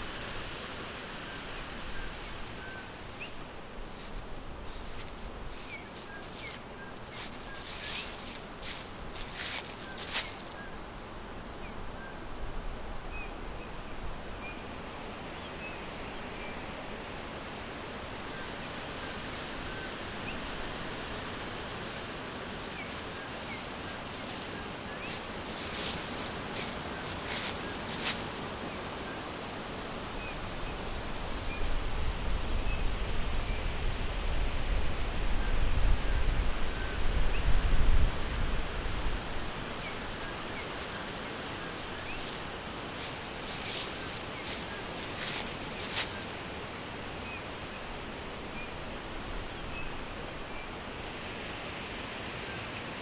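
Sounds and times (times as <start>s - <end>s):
short sharp rustles: 3.2s - 10.7s, 21.0s - 28.6s, 39.0s - 46.5s
steady hiss: 16.8s - 29.0s.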